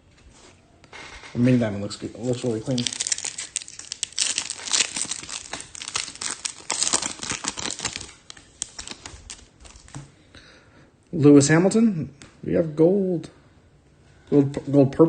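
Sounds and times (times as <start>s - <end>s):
foil wrapper tearing and crinkling: 2.2s - 10.0s.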